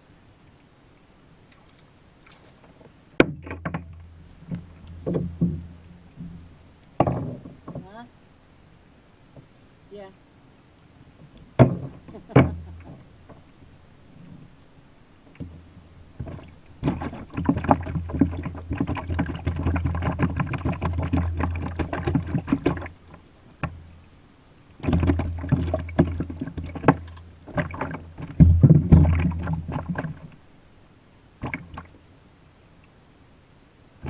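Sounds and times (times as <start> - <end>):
water against a boat: 0.0 - 34.0
knocking on kayak hull: 27.6 - 30.0.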